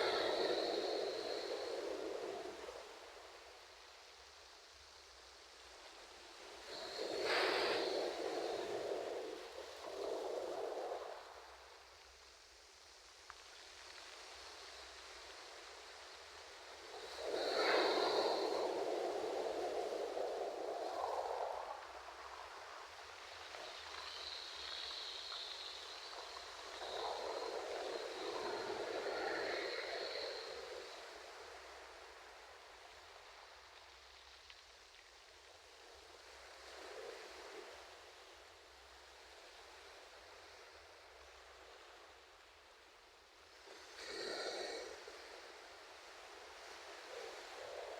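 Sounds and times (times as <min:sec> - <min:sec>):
ocean waves on a shore: 0:00.0 - 0:03.5, 0:14.2 - 0:33.5
faint ocean waves on shore: 0:00.0 - 0:47.9.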